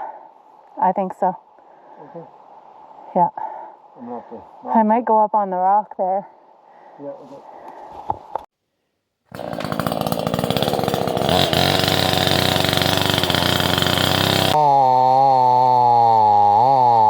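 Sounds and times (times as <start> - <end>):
chainsaw cutting wood: 9.3 - 17.0.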